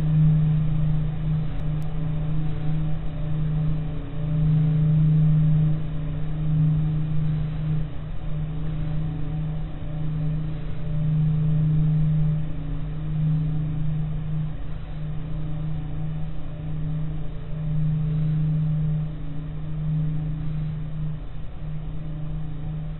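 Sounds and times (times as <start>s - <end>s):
low steady hum with overtone: 0.0s - 22.9s.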